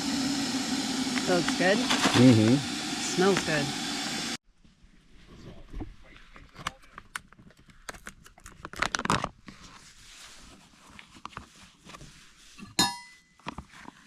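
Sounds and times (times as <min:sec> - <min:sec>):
spoon clinking on bowl: 0:12.8 - 0:13.2.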